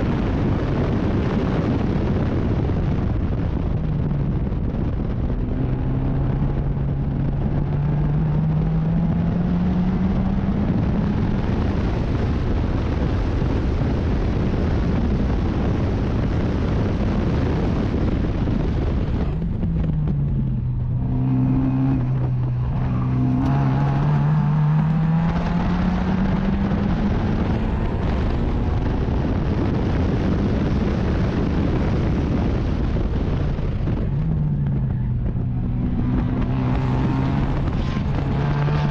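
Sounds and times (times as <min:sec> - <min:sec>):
wind and road noise: 0:00.0 - 0:38.9
race car engine revving: 0:05.0 - 0:12.2, 0:17.3 - 0:38.9.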